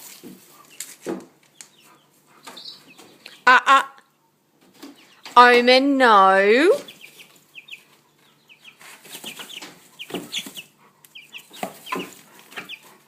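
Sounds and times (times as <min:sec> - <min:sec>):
chickens scratching in hay: 0:00.0 - 0:01.0, 0:08.7 - 0:10.8
chickens clucking: 0:00.0 - 0:05.4, 0:06.7 - 0:13.0.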